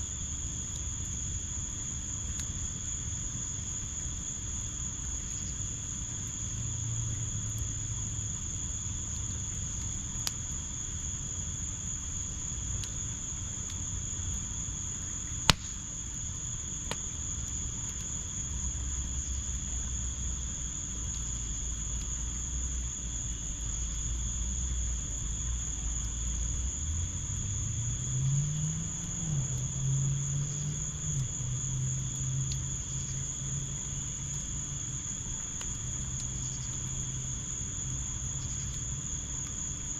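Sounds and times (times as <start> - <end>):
crickets chirring: 0.0 - 39.9
wood fire pops: 9.1 - 10.6, 14.8 - 18.5, 34.1 - 37.2.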